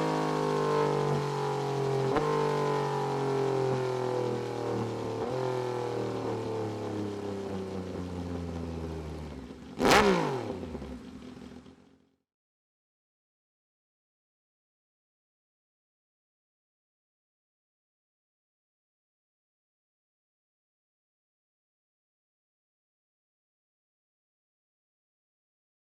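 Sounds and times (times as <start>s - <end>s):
motorcycle engine winding down: 0.0s - 12.1s.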